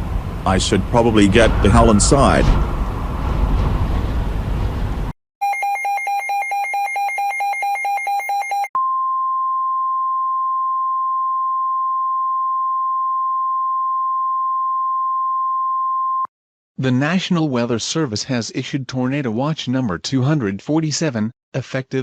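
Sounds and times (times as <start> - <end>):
wind gust: 0.2 - 5.1
steady warning alarm tone: 5.4 - 8.7.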